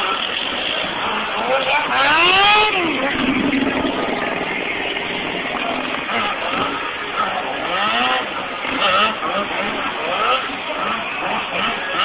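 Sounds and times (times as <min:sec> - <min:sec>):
steady wash of noise: 0:00.0 - 0:08.7
motorcycle engine revving: 0:00.0 - 0:12.0.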